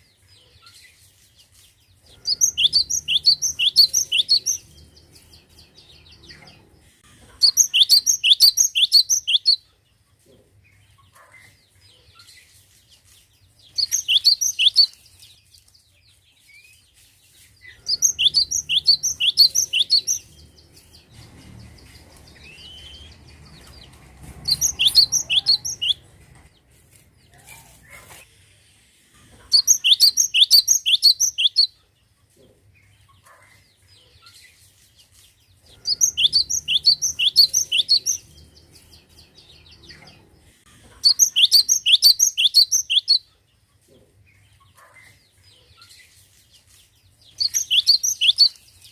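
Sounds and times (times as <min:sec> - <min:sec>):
bird singing sharp notes: 0:17.9 - 0:23.7.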